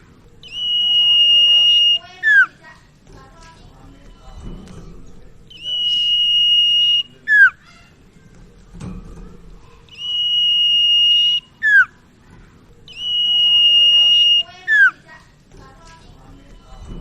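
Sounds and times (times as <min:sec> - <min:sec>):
bird singing high whistle: 0:00.4 - 0:02.5, 0:05.5 - 0:07.6, 0:09.9 - 0:12.0, 0:12.9 - 0:15.0.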